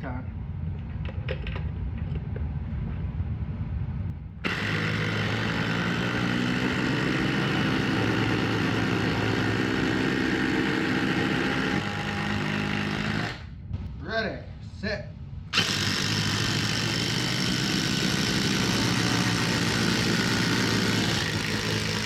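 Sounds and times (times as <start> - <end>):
impact drivers hammering screws: 4.4 - 13.5, 15.6 - 22.0.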